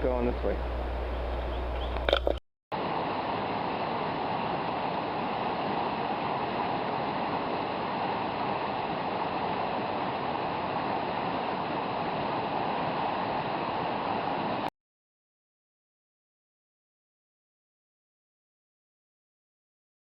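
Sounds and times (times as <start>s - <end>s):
water flowing: 0.0s - 14.7s.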